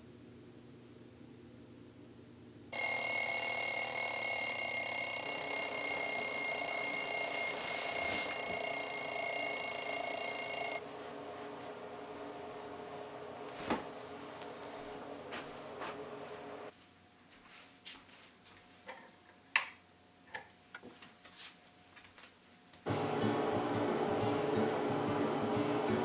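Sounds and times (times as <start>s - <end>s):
alarm clock bell ringing: 2.8s - 10.8s.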